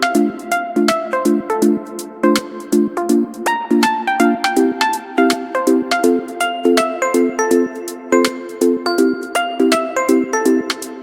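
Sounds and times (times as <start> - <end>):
low repeating accompaniment: 0.0 - 11.0
plucked chime-like melody: 6.4 - 11.0.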